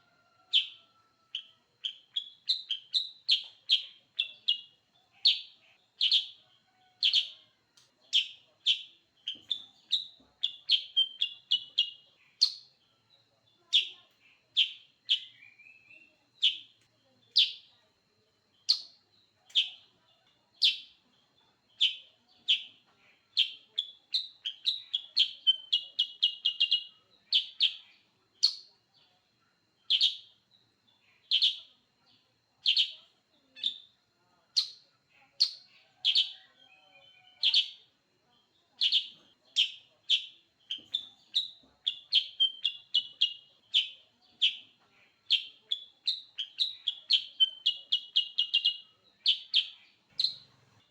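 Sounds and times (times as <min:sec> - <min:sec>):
bird sharp chirps: 0:38.8 - 0:50.9.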